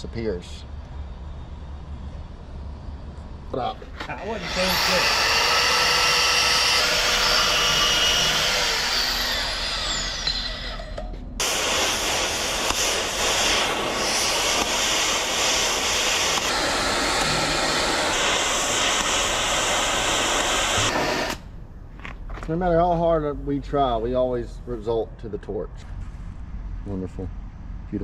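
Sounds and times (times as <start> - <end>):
machinery hissing roar: 4.1 - 10.4, 11.4 - 21.6.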